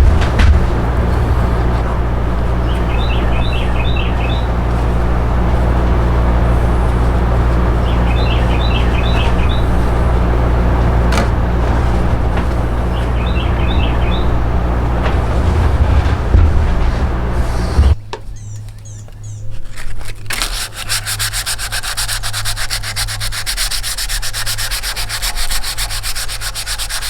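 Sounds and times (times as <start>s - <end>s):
constant rush: 0.0s - 18.0s, 18.6s - 27.0s
steady low hum: 0.0s - 27.0s
songbird chirping: 0.2s - 19.7s.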